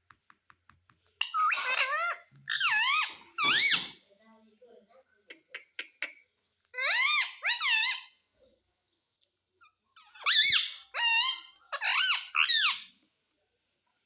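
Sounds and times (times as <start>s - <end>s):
parrot calling in shrill voice: 1.2s - 4.0s, 6.7s - 8.2s, 9.6s - 12.9s.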